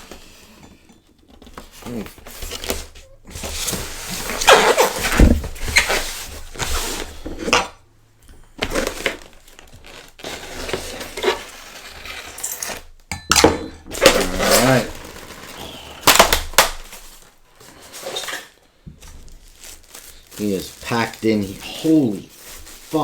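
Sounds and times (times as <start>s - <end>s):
styrofoam scraping and squeaking: 1.4s - 7.7s, 8.6s - 13.0s, 13.9s - 23.0s
tape being pulled: 4.3s - 5.9s, 14.0s - 16.9s.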